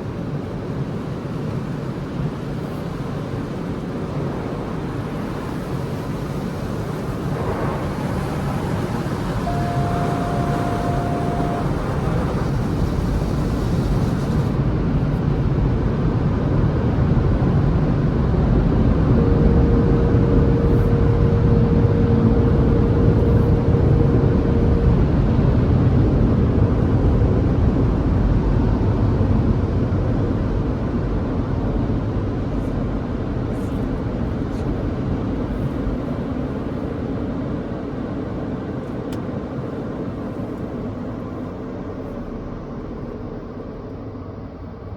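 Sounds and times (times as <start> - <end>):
car wash machinery rushing: 3.4 - 38.6
steady tone: 7.4 - 13.4, 17.9 - 28.0.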